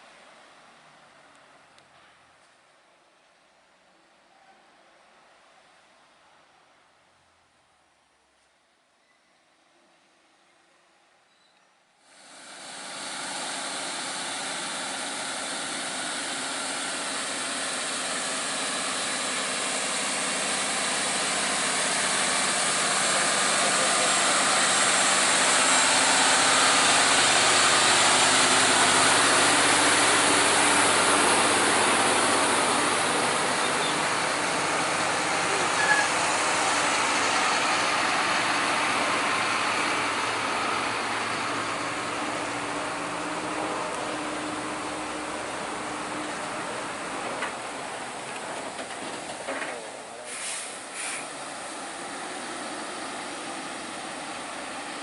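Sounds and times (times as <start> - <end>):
rushing noise: 12.1 - 55.0
truck engine running: 12.2 - 55.0.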